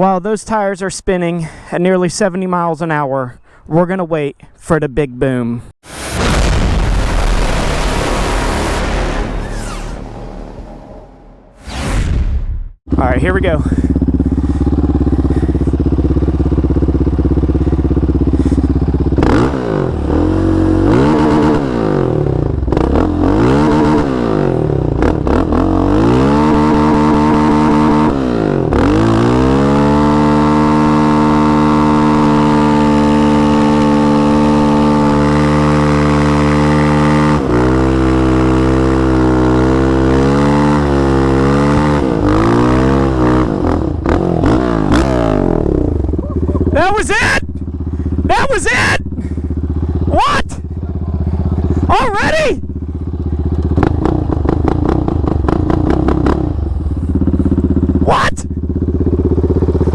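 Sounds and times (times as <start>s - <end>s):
quad engine revving: 12.9s - 59.9s.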